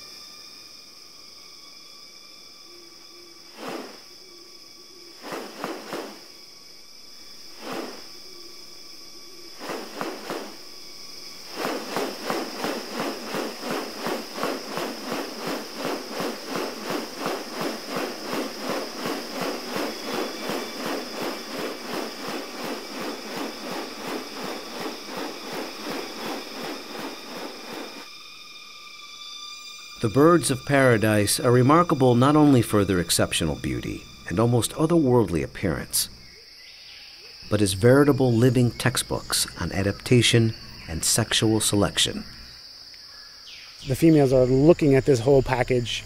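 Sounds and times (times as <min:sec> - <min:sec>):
high insect drone: 0:00.0 - 0:46.0
fast regular pulsing: 0:11.4 - 0:28.1.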